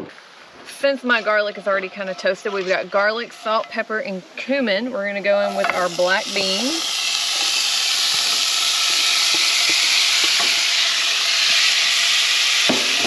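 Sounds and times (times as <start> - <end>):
beans sizzling in a hot pan: 0.7 - 13.0.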